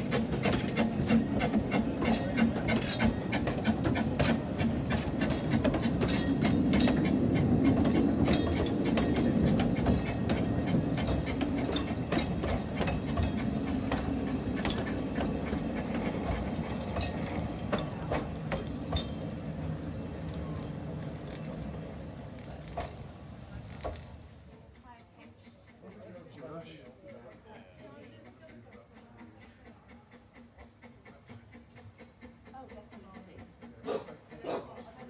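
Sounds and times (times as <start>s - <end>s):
wheels clacking over rails: 0.0s - 24.8s
train rumbling along track: 0.0s - 35.0s.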